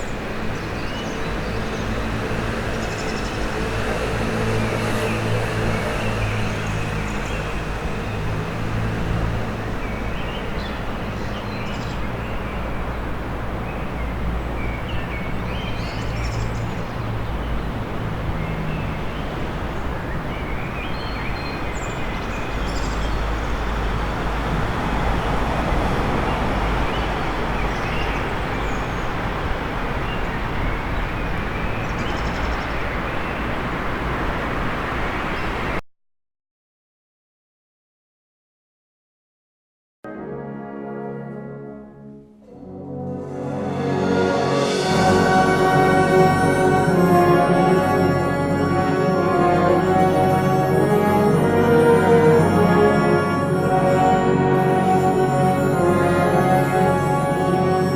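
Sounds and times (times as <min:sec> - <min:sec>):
steady traffic noise: 0:00.0 - 0:35.8, 0:43.2 - 0:57.9
small birds chirping: 0:13.6 - 0:24.6
low engine hum: 0:22.4 - 0:31.7.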